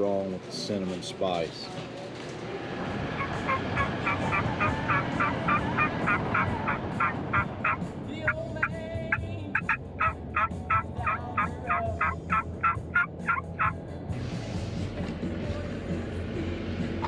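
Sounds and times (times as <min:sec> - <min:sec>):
turkey drawn-out call: 0:03.2 - 0:08.4, 0:09.6 - 0:13.8
turkey clucking: 0:03.2 - 0:13.8.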